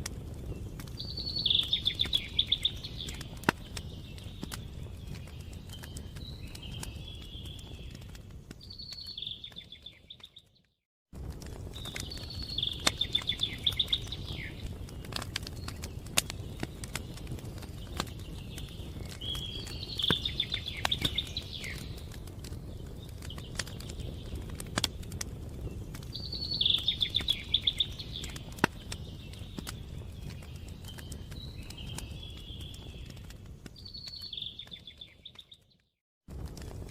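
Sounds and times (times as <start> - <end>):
wood fire crackling and popping: 0.0 - 36.9
songbird singing trilled phrase: 1.0 - 4.6, 11.8 - 14.7, 17.8 - 22.0, 26.2 - 33.1.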